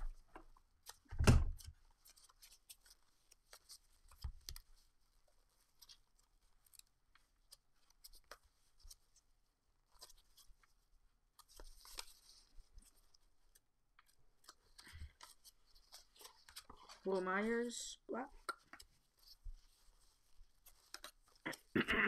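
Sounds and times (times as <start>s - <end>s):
trading cards clicking and scraping: 20.7s - 21.7s.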